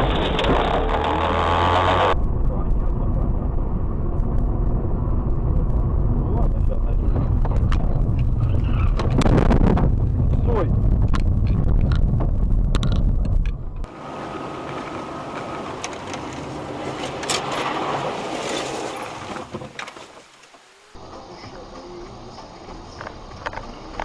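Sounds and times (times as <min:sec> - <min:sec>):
car road and engine rumble: 0:00.0 - 0:24.0
traffic hiss: 0:13.9 - 0:24.0.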